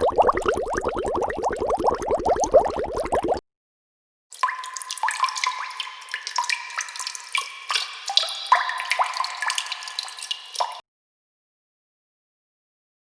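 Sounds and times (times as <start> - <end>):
water drops plinking into water: 0.0 - 3.4, 4.4 - 10.8.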